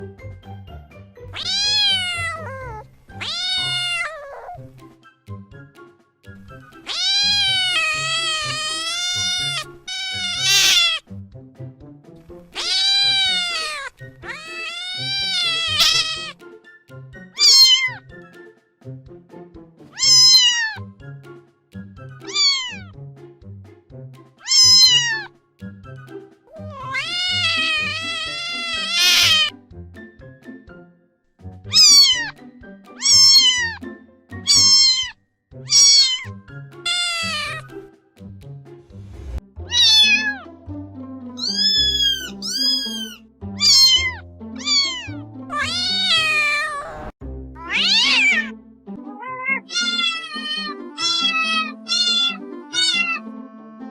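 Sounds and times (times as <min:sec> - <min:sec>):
cats and kittens meowing: 0:01.3 - 0:04.8, 0:06.8 - 0:11.0, 0:12.5 - 0:16.4, 0:17.3 - 0:18.0, 0:20.0 - 0:20.9, 0:22.2 - 0:22.9, 0:24.4 - 0:25.3, 0:26.5 - 0:29.5, 0:31.7 - 0:32.4, 0:33.0 - 0:33.8, 0:34.4 - 0:37.8, 0:39.6 - 0:40.5, 0:41.4 - 0:48.5, 0:49.1 - 0:53.3
background music with steady beat: 0:04.6 - 0:10.0, 0:10.6 - 0:46.1.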